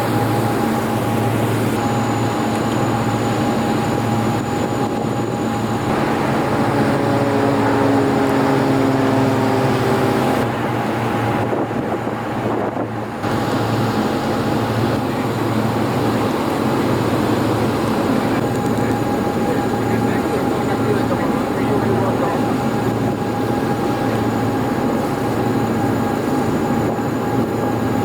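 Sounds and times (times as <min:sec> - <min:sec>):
steady engine drone: 0:00.0 - 0:28.0
wind noise: 0:05.8 - 0:13.9.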